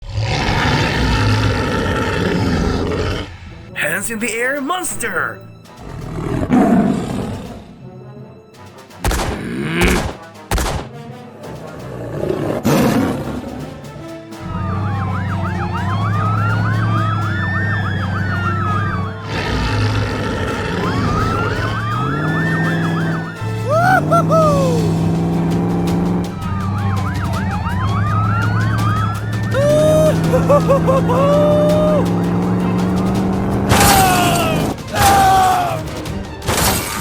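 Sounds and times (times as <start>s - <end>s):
emergency siren wailing: 14.4s - 33.2s.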